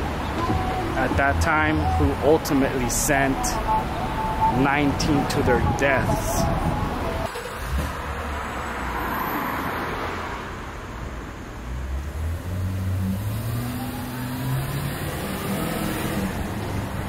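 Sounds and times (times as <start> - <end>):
vehicle engine accelerating: 11.6 - 17.0.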